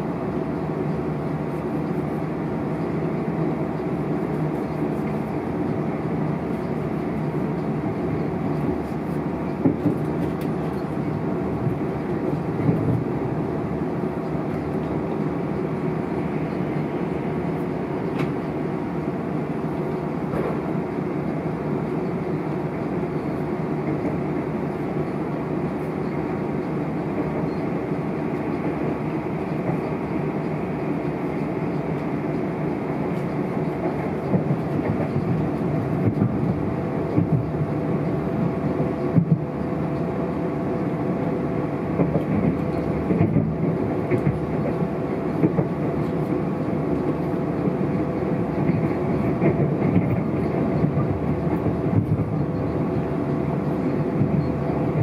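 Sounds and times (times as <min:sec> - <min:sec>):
train rumble inside carriage: 0:00.0 - 0:55.0
wheels knocking on rail joints: 0:42.0 - 0:44.8.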